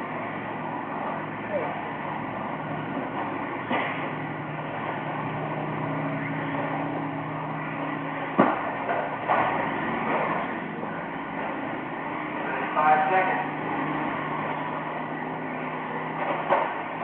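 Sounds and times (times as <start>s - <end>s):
rc truck motors humming: 0.0s - 17.0s.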